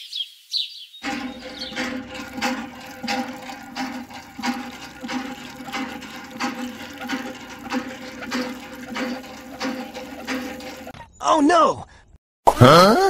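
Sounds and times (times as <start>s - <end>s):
hand pump water gushing: 1.0s - 11.0s.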